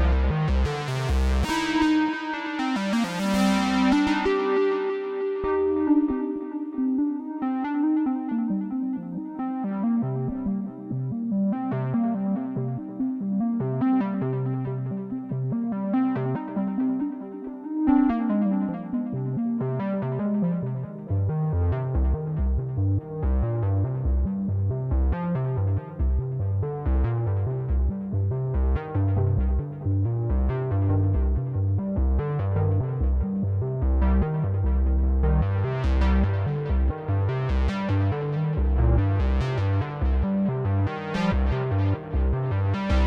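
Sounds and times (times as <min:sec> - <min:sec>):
synthesizer deep bass line: 0:00.0 - 0:01.7, 0:20.1 - 0:43.0.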